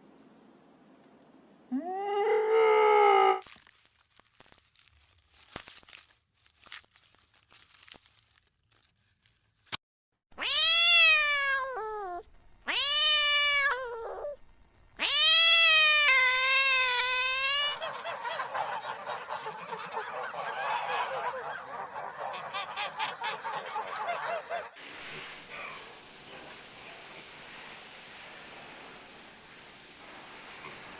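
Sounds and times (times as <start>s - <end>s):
animal crying out: 1.7s - 3.4s, 15.0s - 24.8s.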